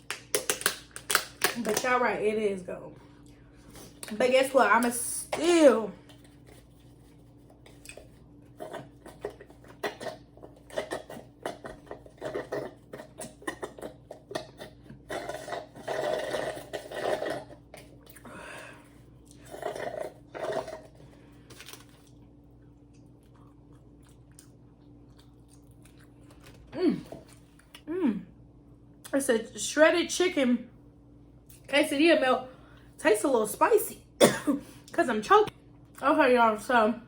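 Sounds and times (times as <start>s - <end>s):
person chewing food: 6.1s - 18.3s, 19.0s - 27.9s.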